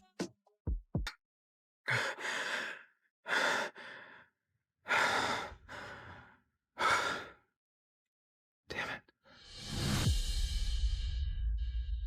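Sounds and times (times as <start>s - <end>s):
person breathing heavily: 1.9s - 7.5s.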